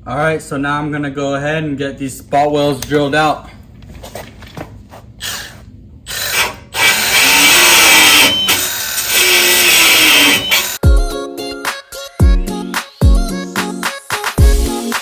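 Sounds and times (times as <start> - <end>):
power drill drilling metal: 6.1 - 10.8.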